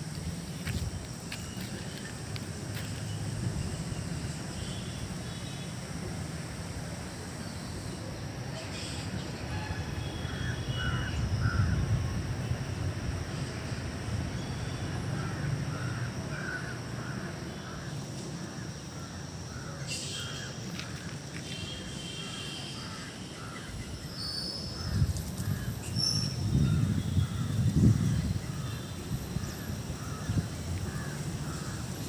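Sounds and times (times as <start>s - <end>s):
crows cawing: 10.2s - 11.8s, 15.2s - 17.9s, 28.6s - 31.9s.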